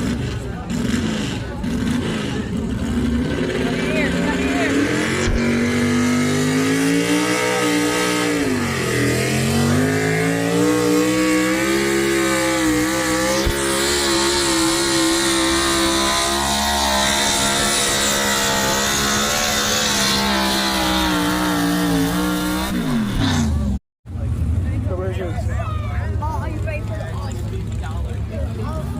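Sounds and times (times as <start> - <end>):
vehicle engine at full throttle: 0.0 - 28.9.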